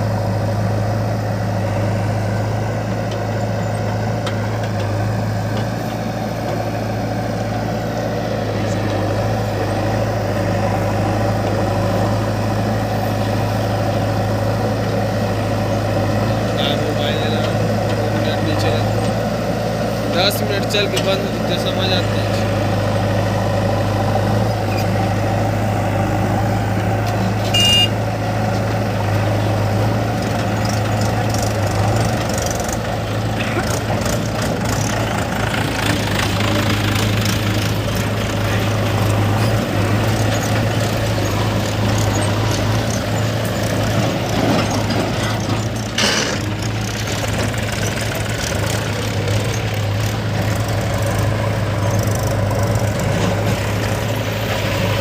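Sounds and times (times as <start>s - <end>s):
diesel engine running: 0.0s - 55.0s
short high beep: 27.5s - 28.0s.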